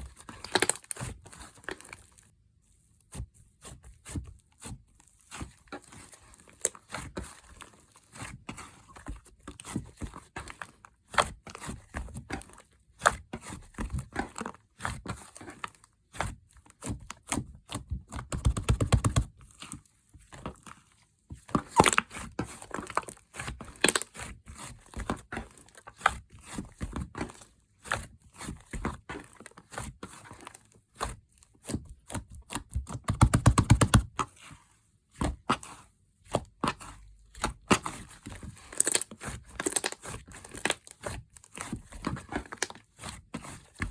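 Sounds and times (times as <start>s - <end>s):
slime squished by hand: 38.7s - 40.9s.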